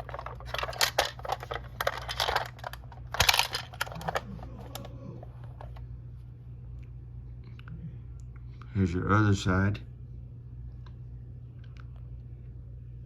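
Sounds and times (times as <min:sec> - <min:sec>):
toy truck clicks and rustles: 0:00.0 - 0:04.9
steady low hum: 0:00.0 - 0:13.0.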